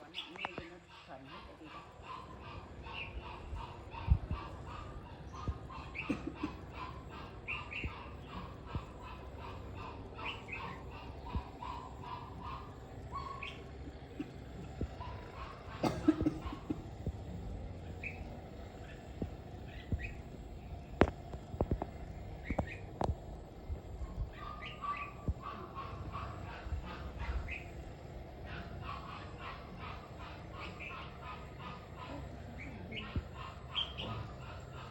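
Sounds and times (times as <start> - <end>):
bird chirping: 0.0 - 34.9
bulbuls calling: 0.0 - 34.9.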